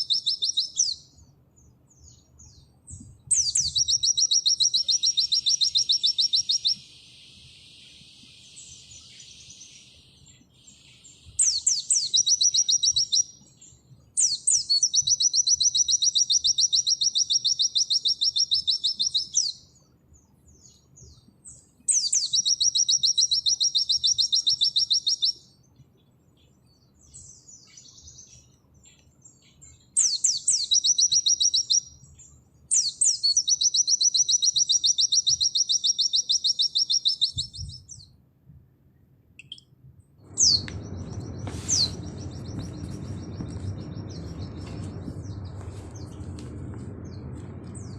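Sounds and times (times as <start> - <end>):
soft bird chirps: 0.0 - 38.2, 39.4 - 47.9
bird singing fast high notes: 40.3 - 46.2.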